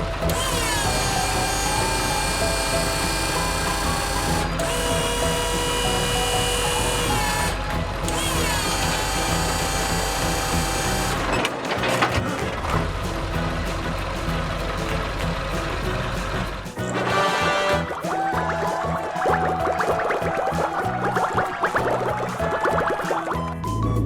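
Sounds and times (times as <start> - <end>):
power drill whining: 0.0 - 13.0
background music: 0.0 - 24.0.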